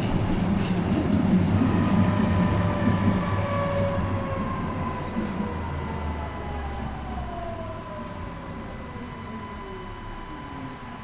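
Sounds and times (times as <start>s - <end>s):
tram running noise: 0.0s - 11.0s
electric whine falling in pitch: 6.0s - 11.0s.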